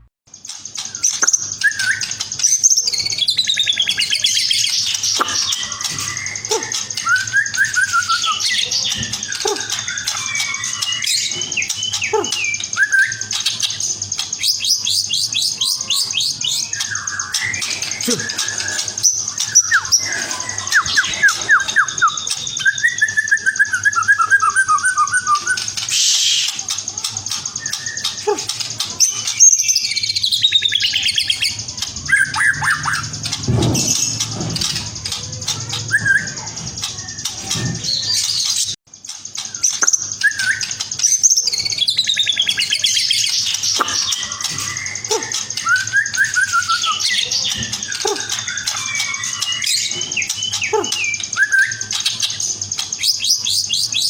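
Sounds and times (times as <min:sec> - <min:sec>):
bird singing trills and whistles: 0:00.3 - 0:54.0.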